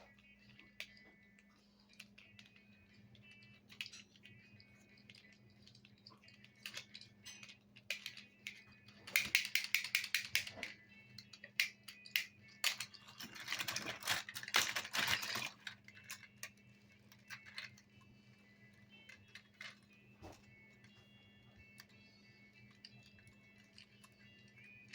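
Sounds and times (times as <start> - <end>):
toy vehicles clicking and rattling: 0.0 - 24.9.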